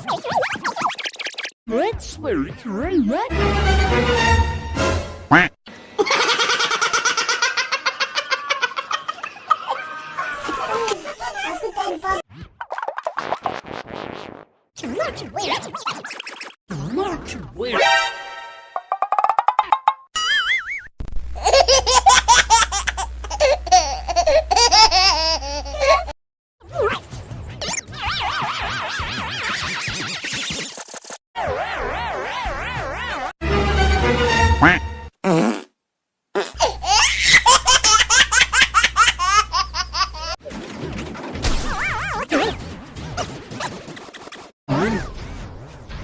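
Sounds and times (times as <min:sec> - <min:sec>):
high-pitched giggling laughter: 0:06.0 - 0:12.0, 0:21.4 - 0:26.2.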